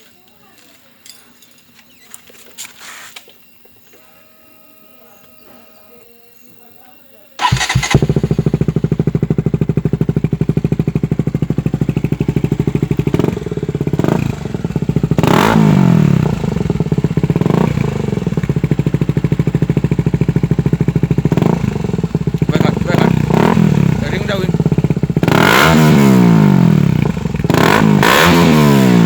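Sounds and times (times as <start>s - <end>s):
motorcycle engine idling: 7.4s - 29.0s
motorcycle engine starting: 7.4s - 29.0s.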